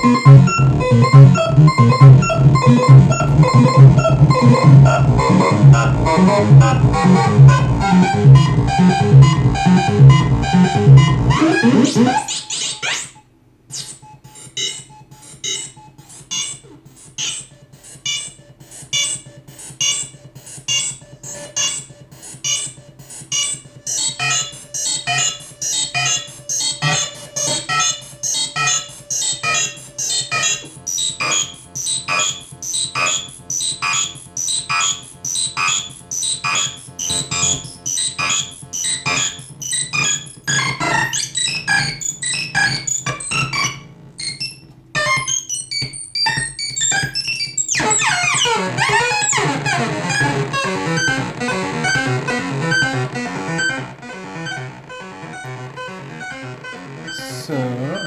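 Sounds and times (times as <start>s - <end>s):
sustained low bass note: 0.0s - 12.0s
short bright synth notes: 0.0s - 12.5s.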